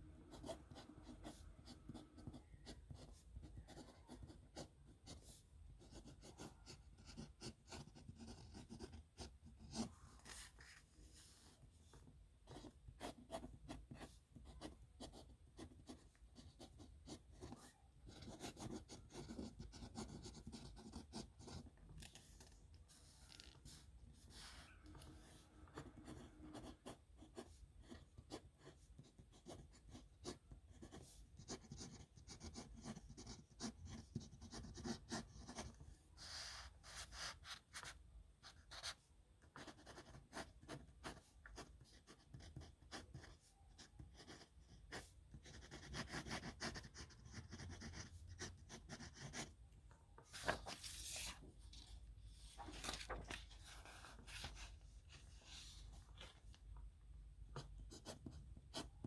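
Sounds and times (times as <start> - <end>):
pen scratching on paper: 0.3 - 10.4, 12.5 - 21.7, 25.7 - 37.9, 38.5 - 49.5, 57.6 - 58.9.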